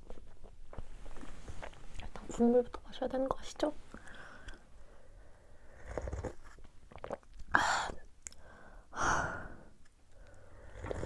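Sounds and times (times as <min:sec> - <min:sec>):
person slurping broth: 0:10.6 - 0:11.0.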